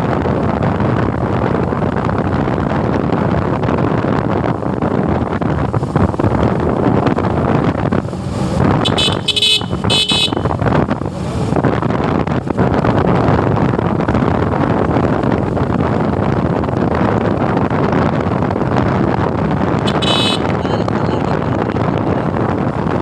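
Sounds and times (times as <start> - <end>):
wind rushing over microphone: 0.0 - 23.0
high-pitched vehicle horn toots: 8.8 - 10.5, 19.9 - 21.6.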